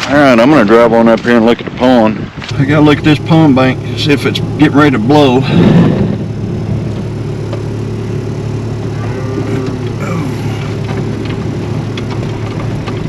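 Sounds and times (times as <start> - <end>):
vehicle engine running steadily: 0.0 - 13.0.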